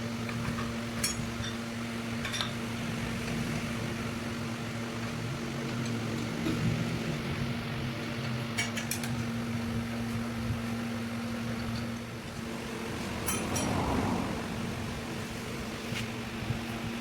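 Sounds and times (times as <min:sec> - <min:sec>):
rough rushing noise: 0:12.6 - 0:16.3.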